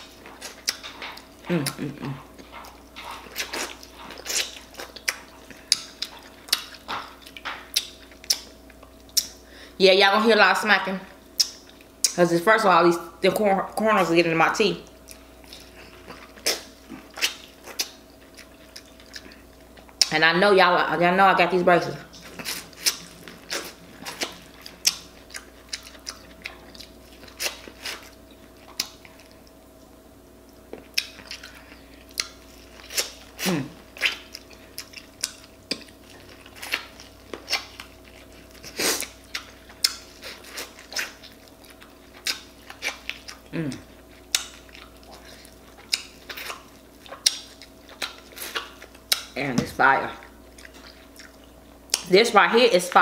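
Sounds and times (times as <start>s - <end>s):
person biting and chewing corn: 0.0s - 9.4s, 22.2s - 29.5s, 30.7s - 49.3s.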